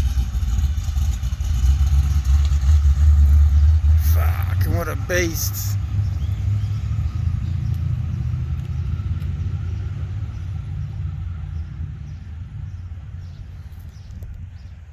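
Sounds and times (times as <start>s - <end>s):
car engine and exhaust rumble: 0.0s - 14.9s.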